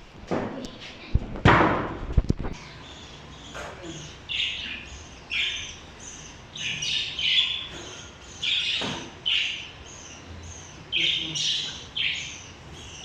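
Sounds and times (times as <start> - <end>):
parrots squawking: 2.6 - 13.0.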